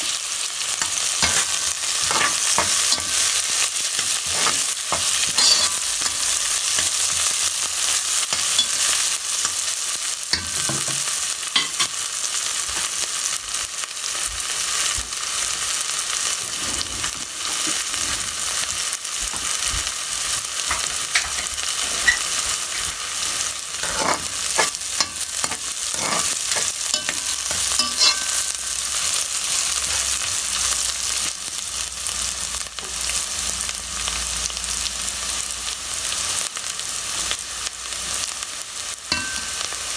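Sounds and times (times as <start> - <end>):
food sizzling in oil: 0.0 - 39.9
utensil scraping a pan: 4.0 - 7.2, 16.4 - 18.4, 20.7 - 28.8.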